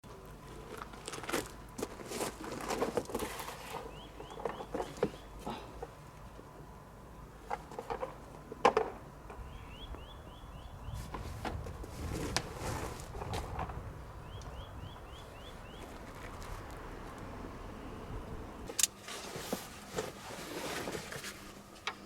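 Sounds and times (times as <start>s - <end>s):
bird chirping: 3.7s - 5.4s, 9.3s - 11.1s, 14.0s - 16.1s.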